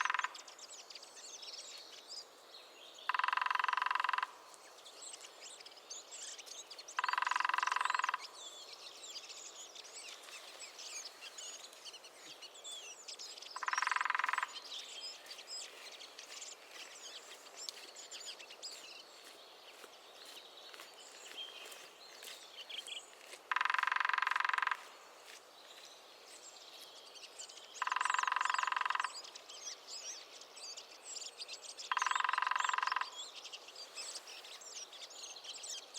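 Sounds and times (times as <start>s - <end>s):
small birds chirping: 0.0s - 35.9s
woodpecker bursts: 23.5s - 24.9s.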